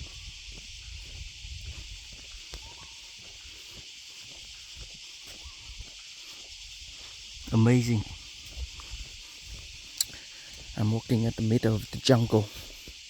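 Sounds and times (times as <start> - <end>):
footsteps on forest floor: 0.0 - 11.0
high insect drone: 0.0 - 13.0.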